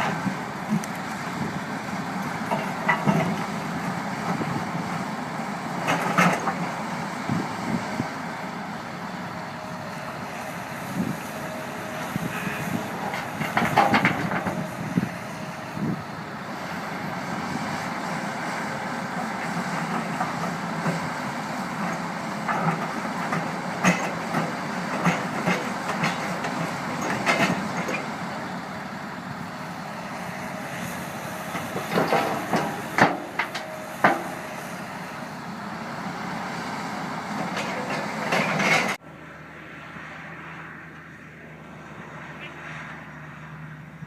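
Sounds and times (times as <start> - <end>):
heavy earthmoving machinery running: 0.0 - 44.0
metal clanks and knocks: 2.4 - 3.4, 13.1 - 15.1, 21.8 - 28.1, 31.5 - 34.4, 37.5 - 39.0.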